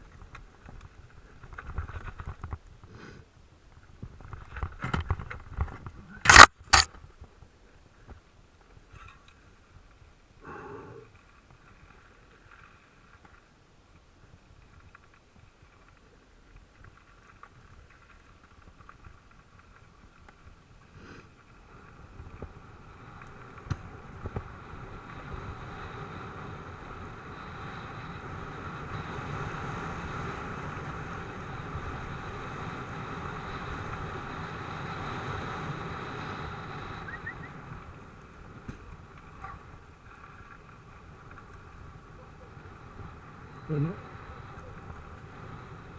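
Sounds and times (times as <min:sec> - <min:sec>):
bike tyres on dirt track: 0:00.0 - 0:45.9
wind noise: 0:21.0 - 0:45.9.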